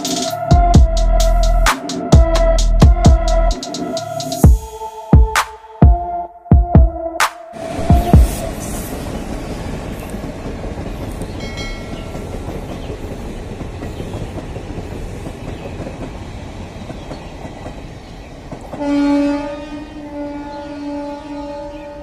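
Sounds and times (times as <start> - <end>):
train wheels rumbling on track: 7.7 - 19.3
train horn: 18.8 - 22.0.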